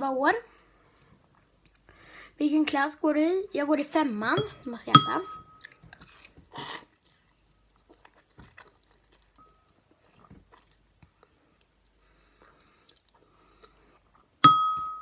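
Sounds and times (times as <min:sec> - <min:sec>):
faint chewing and mouth clicks: 0:00.8 - 0:02.0, 0:05.5 - 0:14.4.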